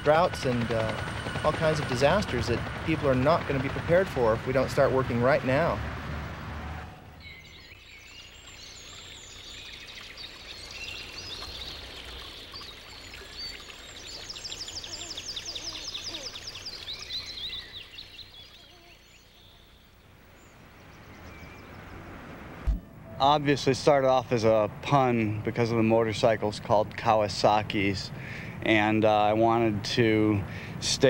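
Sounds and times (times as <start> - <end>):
birds chirping and calling: 7.2 - 22.1.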